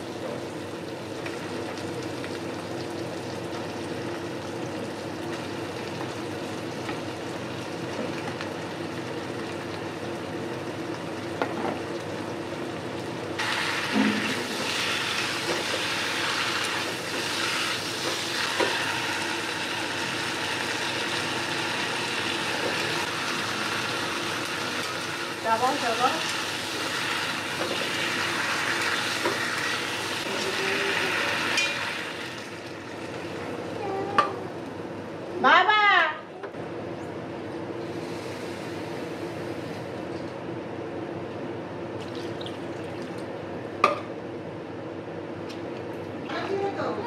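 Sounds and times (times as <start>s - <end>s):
chicken sizzling in a pan: 13.4s - 33.4s.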